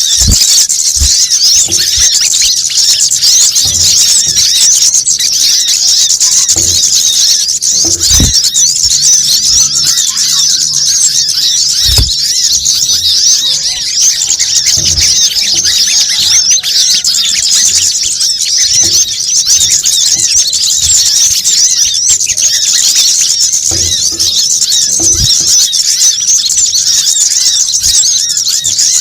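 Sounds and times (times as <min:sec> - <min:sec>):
low thumps: 0:00.0 - 0:02.6, 0:06.5 - 0:09.6, 0:11.8 - 0:13.7
flock of small birds chirping: 0:00.0 - 0:29.0.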